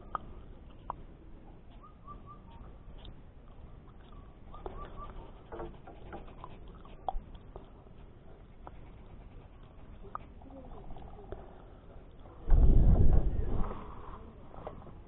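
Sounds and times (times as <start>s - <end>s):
low steady rumble: 0.0s - 15.0s
small bird chirping: 4.0s - 5.4s.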